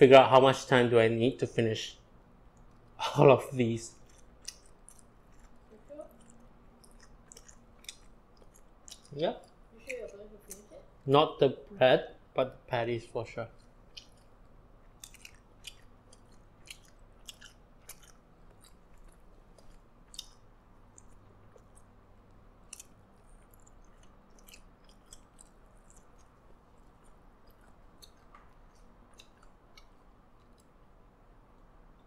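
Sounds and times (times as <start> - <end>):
closed mouth chewing: 3.9 - 9.6, 13.5 - 30.8.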